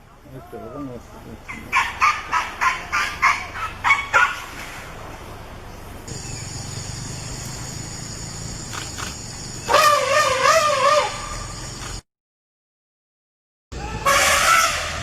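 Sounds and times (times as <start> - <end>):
insects buzzing: 4.9 - 12.0
wavering trumpet-like call: 9.7 - 11.5, 13.8 - 15.0.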